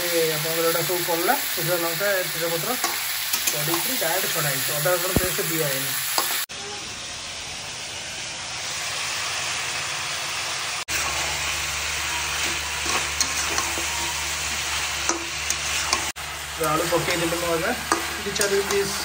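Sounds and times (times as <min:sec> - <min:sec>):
chicken sizzling in a pan: 0:00.0 - 0:19.0
spatula scraping a pan: 0:12.0 - 0:16.1.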